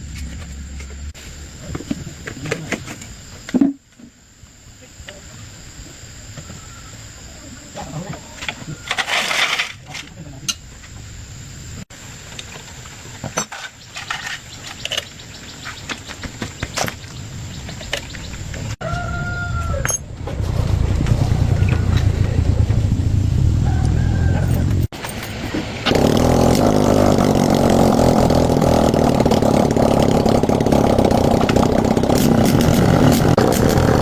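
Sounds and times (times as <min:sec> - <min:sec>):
motorcycle engine rumbling: 0:10.1 - 0:34.0
rooster crowing: 0:18.8 - 0:20.0, 0:23.6 - 0:24.9.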